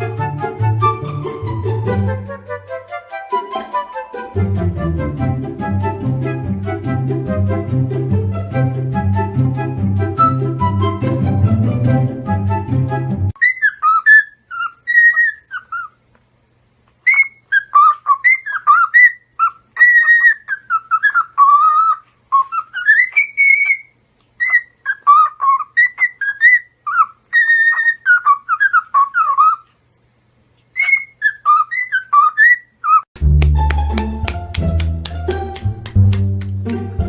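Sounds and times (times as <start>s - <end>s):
parrot whistling: 13.4s - 16.0s, 17.1s - 29.6s, 30.8s - 33.1s.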